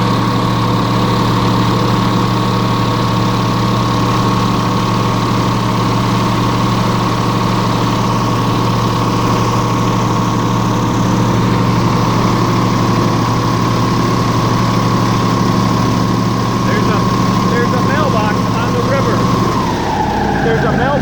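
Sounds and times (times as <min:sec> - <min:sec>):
airboat engine and propeller humming: 0:00.0 - 0:21.0.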